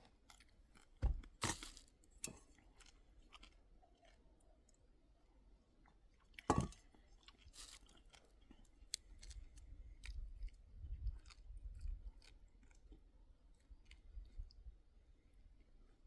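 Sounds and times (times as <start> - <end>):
crunching clicks and crackles: 6.2 - 14.4.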